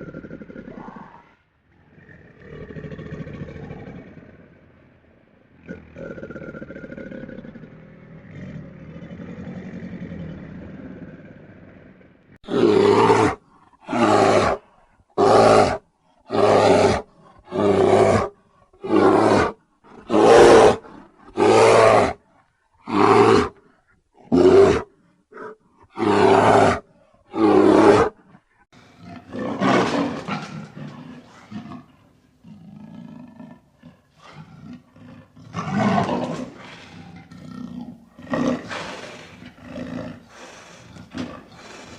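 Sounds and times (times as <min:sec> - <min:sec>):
large animal roaring: 0:00.0 - 0:14.6, 0:28.8 - 0:41.9.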